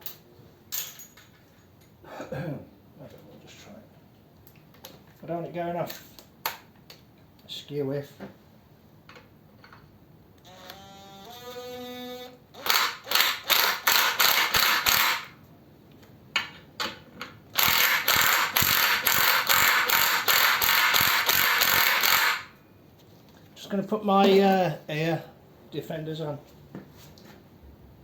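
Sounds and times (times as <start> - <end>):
ratcheting hand tool on metal: 17.6 - 22.5.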